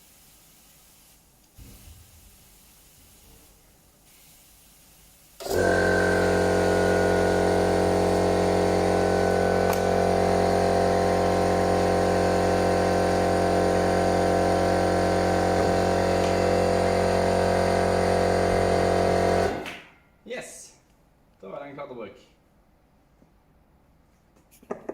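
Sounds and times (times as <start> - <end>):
motor running steadily: 5.4 - 19.7.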